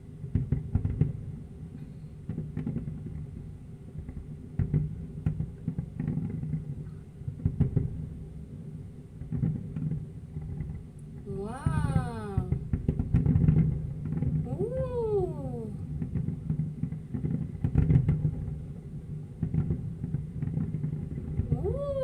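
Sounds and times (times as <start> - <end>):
low background hum: 0.0 - 22.0
fireworks bangs: 19.4 - 22.0.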